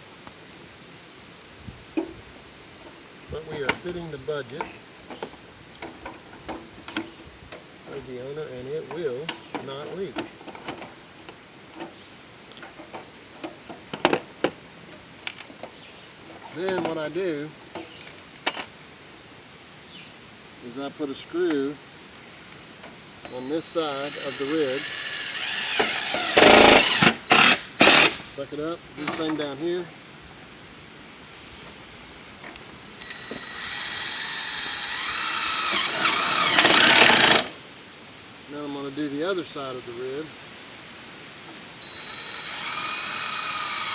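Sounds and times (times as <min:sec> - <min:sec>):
screw gun driving into metal: 0:24.0 - 0:28.2, 0:33.0 - 0:37.5, 0:41.9 - 0:43.9
snips cutting metal: 0:33.0 - 0:37.5.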